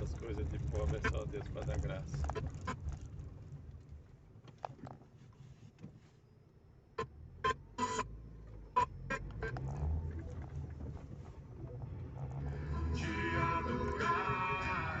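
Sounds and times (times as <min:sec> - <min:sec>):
low steady hum: 0:06.9 - 0:15.0
music from car cd player: 0:12.4 - 0:15.0.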